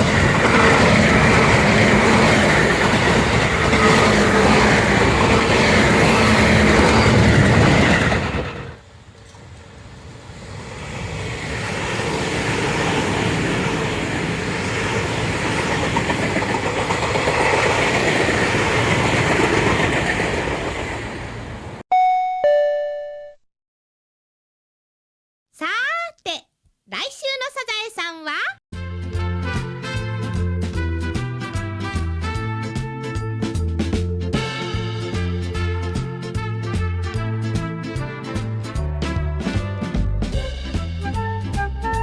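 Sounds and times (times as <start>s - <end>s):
electric train passing: 0.0s - 21.8s
two-note ding-dong chime: 21.9s - 23.4s.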